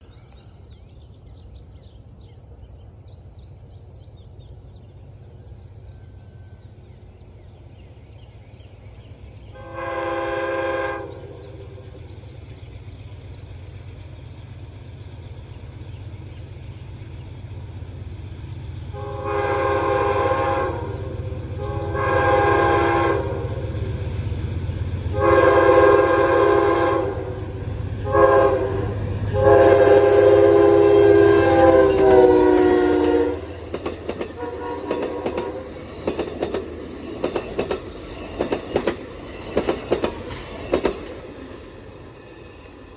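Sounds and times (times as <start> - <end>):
train rumbling: 0.0 - 42.9
locomotive air horn blasts: 9.6 - 11.4, 18.9 - 23.7, 25.1 - 33.6, 34.4 - 35.7.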